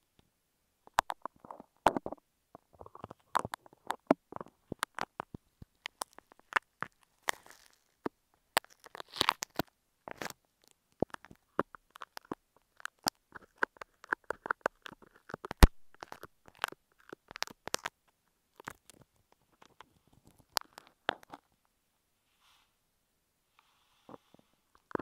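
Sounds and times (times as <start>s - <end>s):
small clicks and crackles: 0.9s - 21.7s, 24.1s - 25.0s.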